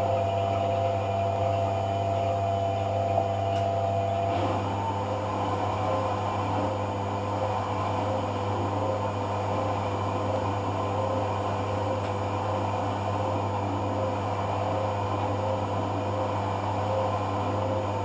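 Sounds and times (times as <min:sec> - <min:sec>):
washing machine motor hum: 0:00.0 - 0:18.0
faint pulsing tone: 0:01.4 - 0:02.9, 0:04.4 - 0:13.4.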